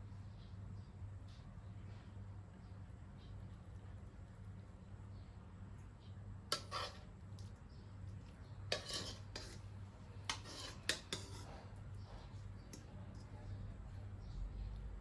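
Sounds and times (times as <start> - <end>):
low steady hum: 0.0 - 15.0
metal utensil scraping a pan: 6.5 - 7.5, 8.4 - 12.9.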